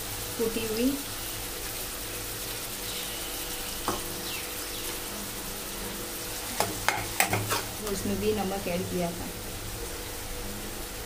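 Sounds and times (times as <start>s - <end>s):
vegetables sizzling in hot oil: 0.0s - 11.0s
spoon clattering against a pan: 6.6s - 7.7s.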